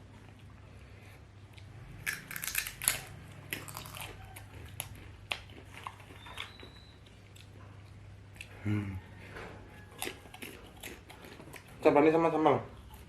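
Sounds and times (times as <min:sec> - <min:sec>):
crunching bites of potato: 0:01.6 - 0:07.5, 0:09.8 - 0:11.8.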